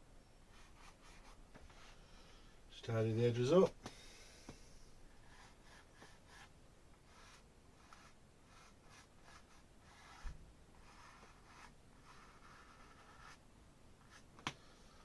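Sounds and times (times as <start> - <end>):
paintbrush scratching on canvas: 0.5 - 2.0, 5.2 - 13.4.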